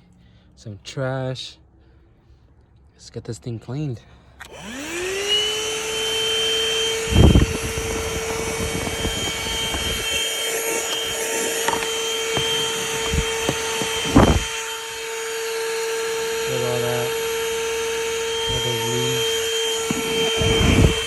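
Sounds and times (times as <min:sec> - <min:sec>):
handheld vacuum motor whining: 0:04.4 - 0:21.0.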